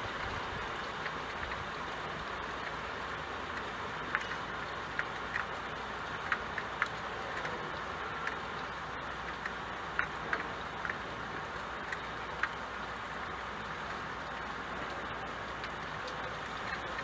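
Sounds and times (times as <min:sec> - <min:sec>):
raindrops ticking: 0:00.0 - 0:17.0
steady rain: 0:00.0 - 0:17.0.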